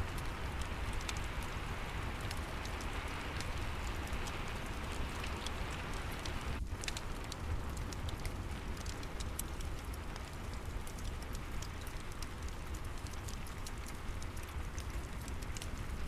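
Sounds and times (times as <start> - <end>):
rain hissing: 0.0 - 6.7
wood fire crackling: 0.0 - 16.0.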